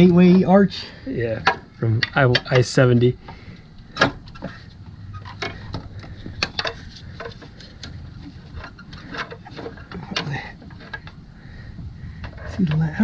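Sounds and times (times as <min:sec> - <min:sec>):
faint low hum: 0:00.0 - 0:13.0
hand tools clicking on metal: 0:01.4 - 0:11.2.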